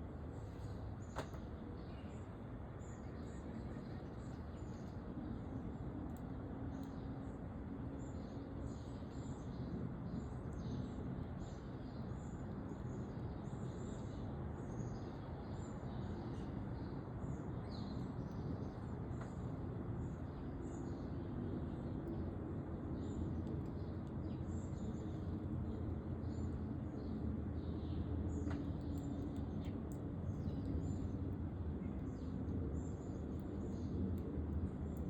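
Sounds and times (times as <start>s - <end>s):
low background rumble: 0.0s - 35.0s
small birds chirping: 0.3s - 35.0s.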